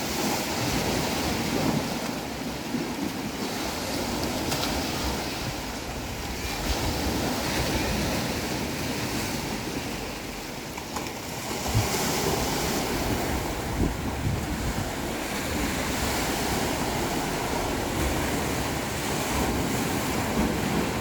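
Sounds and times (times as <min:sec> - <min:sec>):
ocean waves breaking: 0:00.0 - 0:21.0.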